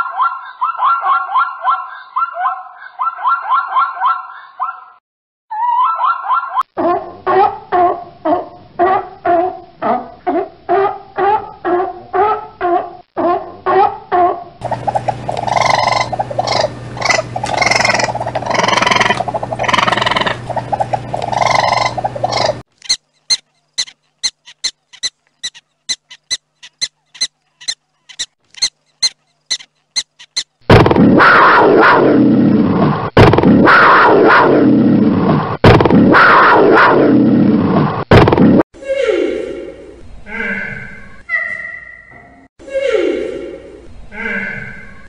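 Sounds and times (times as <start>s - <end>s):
prairie dog barking: 0.0s - 4.9s, 5.5s - 30.4s, 31.2s - 32.1s
sea lion barking: 5.5s - 22.6s.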